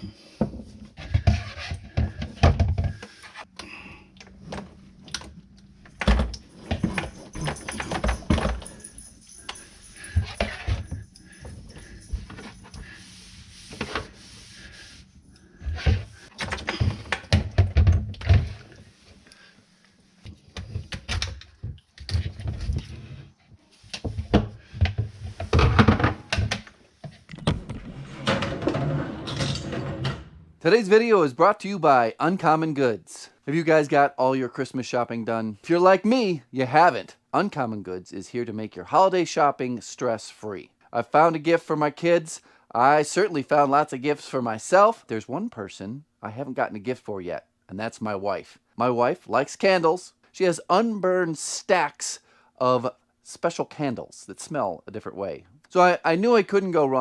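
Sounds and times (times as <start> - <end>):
tools and plumbing fittings clinking: 5.1 - 13.2.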